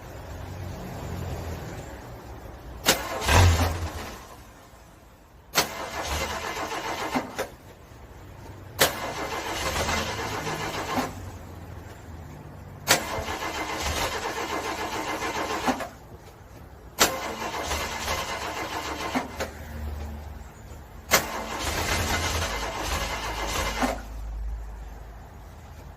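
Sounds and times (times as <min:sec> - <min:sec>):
starter motor cranking engine: 0:02.8 - 0:04.4, 0:05.5 - 0:07.6, 0:08.8 - 0:11.4, 0:12.8 - 0:16.1, 0:17.0 - 0:19.6, 0:21.1 - 0:24.2.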